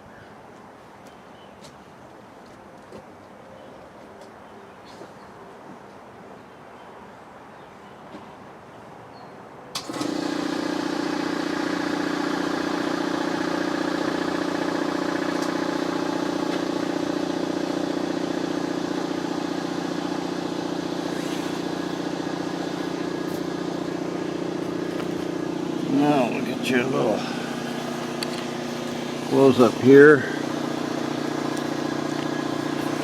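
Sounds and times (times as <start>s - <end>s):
electric machine humming: 9.8s - 33.0s.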